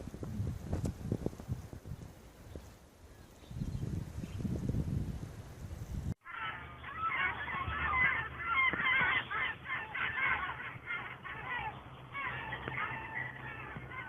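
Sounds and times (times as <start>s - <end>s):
flock of birds honking: 6.2s - 14.0s.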